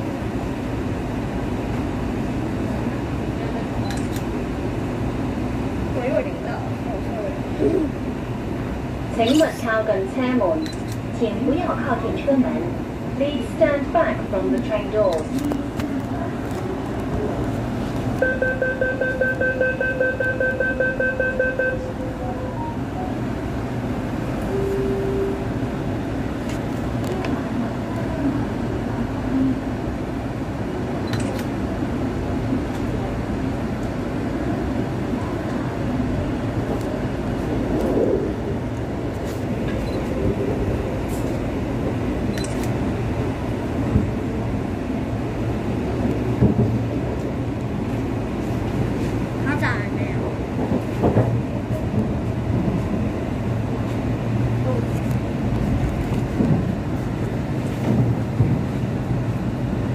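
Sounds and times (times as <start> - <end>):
train running noise: 0.0 - 59.9
door-closing warning beeps: 18.2 - 21.9.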